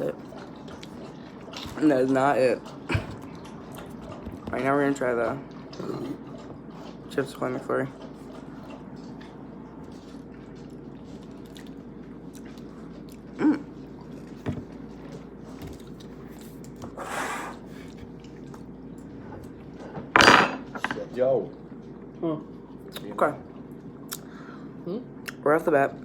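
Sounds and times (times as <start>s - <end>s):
person chewing: 7.9s - 19.7s, 24.0s - 24.4s
person humming: 13.4s - 13.7s.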